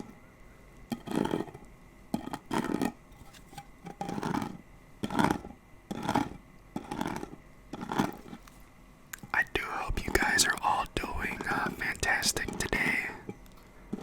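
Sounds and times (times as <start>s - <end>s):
fingernails scratching a candle: 0.9s - 1.6s, 2.2s - 8.4s.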